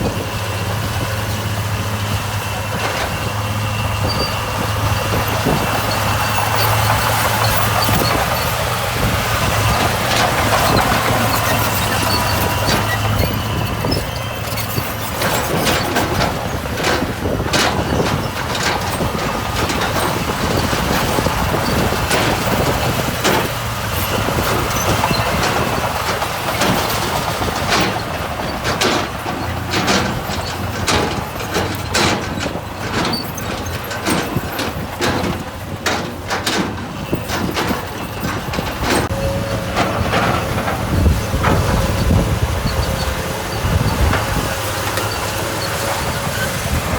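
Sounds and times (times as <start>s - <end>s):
heavy machine engine running: 0.0s - 46.9s
sharp metal clanks and knocks: 9.4s - 39.1s.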